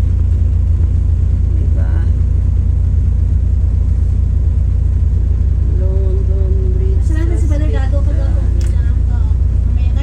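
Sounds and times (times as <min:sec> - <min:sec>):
loud low rumble: 0:00.0 - 0:10.0.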